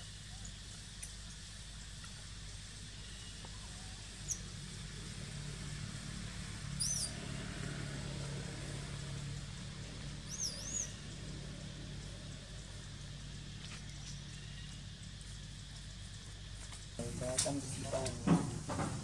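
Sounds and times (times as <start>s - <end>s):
steady low hum: 0.0s - 19.0s
high-pitched bird calls: 6.8s - 7.2s, 10.3s - 11.1s
whistled bird notes: 6.8s - 7.2s, 10.3s - 11.0s.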